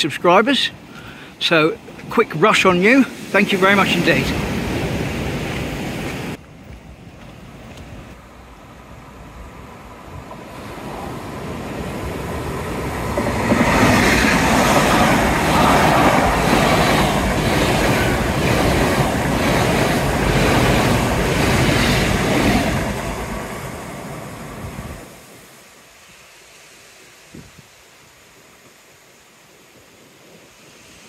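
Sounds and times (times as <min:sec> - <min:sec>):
diesel train passing: 0:01.4 - 0:25.6
wheels beating on rails: 0:10.2 - 0:25.0.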